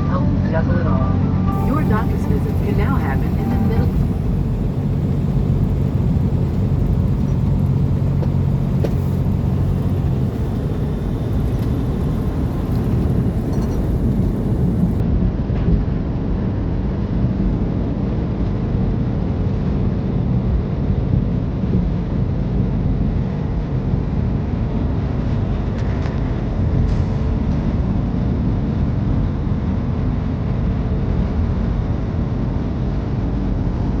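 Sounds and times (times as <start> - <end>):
low engine drone: 0.0 - 15.0
vehicle engine and road rumble: 0.0 - 15.0.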